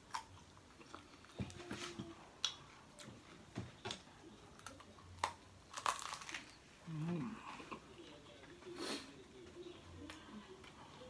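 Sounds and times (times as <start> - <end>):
crunchy biting and chewing: 4.6 - 6.6.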